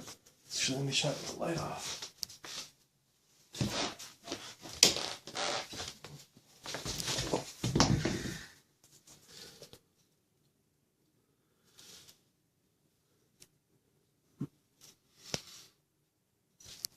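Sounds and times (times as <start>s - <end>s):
rustling and knocking: 5.7s - 8.4s.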